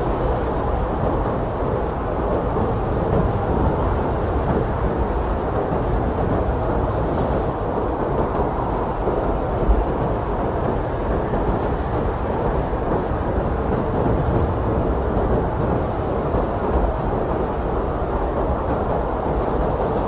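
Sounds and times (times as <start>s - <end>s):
wind blowing hard: 0.0s - 20.0s.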